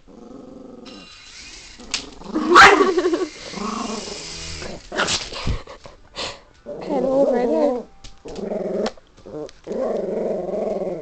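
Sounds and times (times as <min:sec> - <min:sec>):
dog growling and barking: 0:00.0 - 0:01.0, 0:01.8 - 0:05.3, 0:06.6 - 0:11.0.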